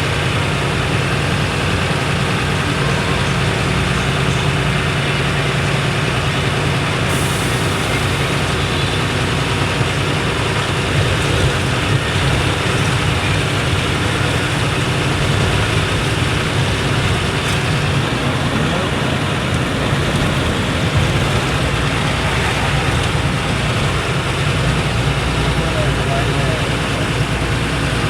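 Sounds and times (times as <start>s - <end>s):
road noise: 0.0s - 28.0s
truck engine droning: 0.0s - 28.0s.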